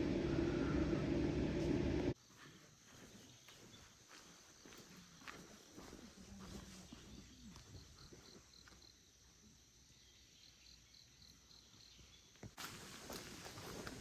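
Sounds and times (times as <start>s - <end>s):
insect chirping: 6.9s - 12.4s.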